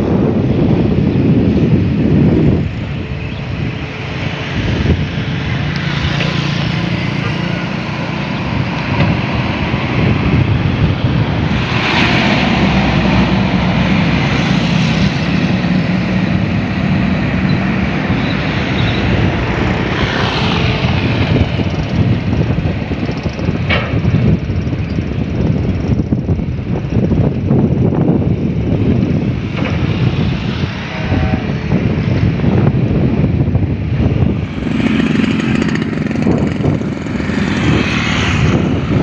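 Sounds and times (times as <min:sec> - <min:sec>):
loud rushing noise: 0:00.0 - 0:39.0.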